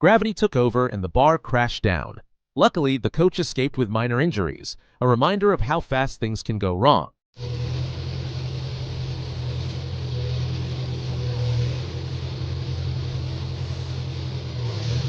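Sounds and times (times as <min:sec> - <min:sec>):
heavy vehicle engine running: 0:07.4 - 0:15.0.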